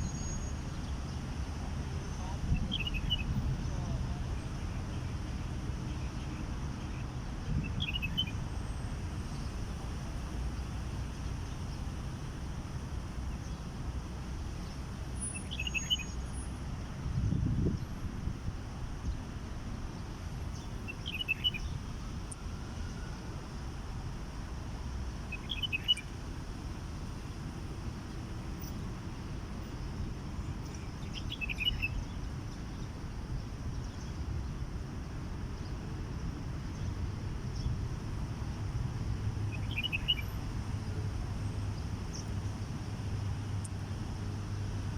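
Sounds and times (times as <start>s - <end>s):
distant city traffic rumble: 0.0s - 44.9s
small birds chirping: 6.1s - 8.7s, 14.6s - 16.4s, 19.9s - 21.9s, 25.1s - 26.1s, 29.7s - 34.3s, 39.5s - 40.4s
high bird chirps: 20.9s - 21.8s, 39.6s - 40.2s.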